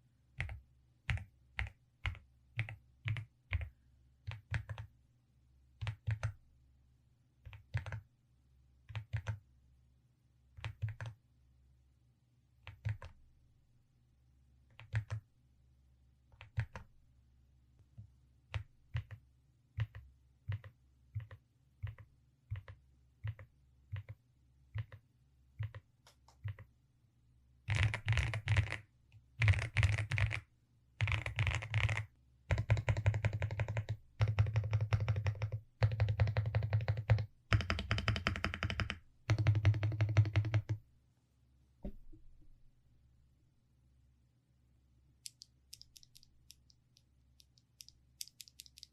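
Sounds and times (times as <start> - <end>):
mechanical keyboard keys clacking: 45.3 - 46.7, 47.4 - 48.9.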